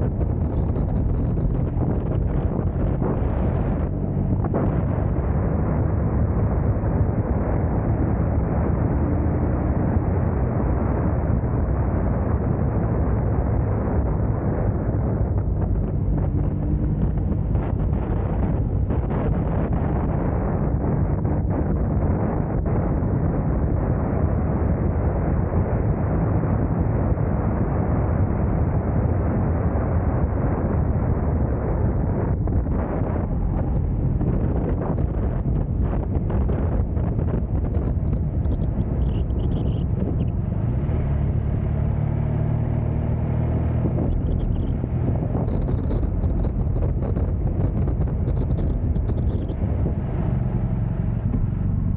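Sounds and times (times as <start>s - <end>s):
motorcycle engine and road noise: 0.0s - 51.9s
wind noise on microphone: 0.0s - 51.9s.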